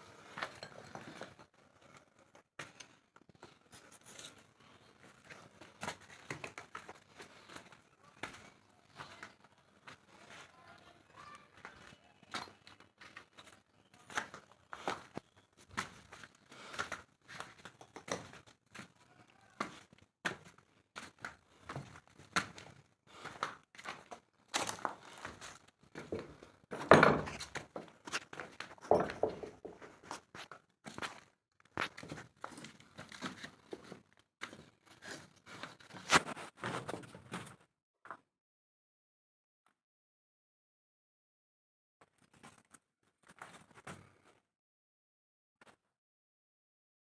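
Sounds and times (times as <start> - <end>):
knocks and clatter of steel pipe: 26.7 - 27.4, 28.8 - 29.8.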